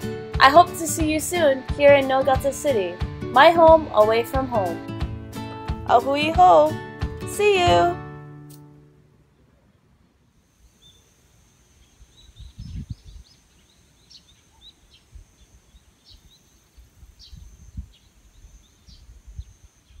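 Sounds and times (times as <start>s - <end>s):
birds chirping: 9.2s - 20.0s.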